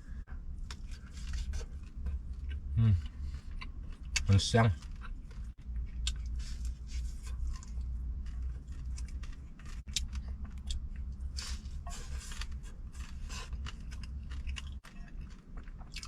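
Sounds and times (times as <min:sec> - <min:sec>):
steady low hum: 0:00.0 - 0:16.0
crunchy chewing: 0:00.6 - 0:16.0.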